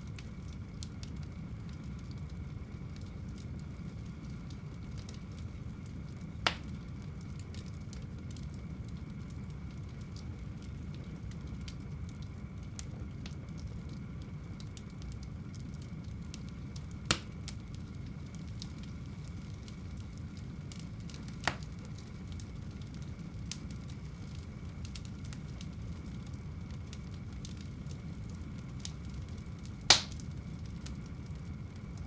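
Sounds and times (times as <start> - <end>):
fire crackling: 0.0 - 32.0
fire flames rumbling: 0.0 - 32.0
fire sharp pops: 6.2 - 8.6, 16.3 - 32.0.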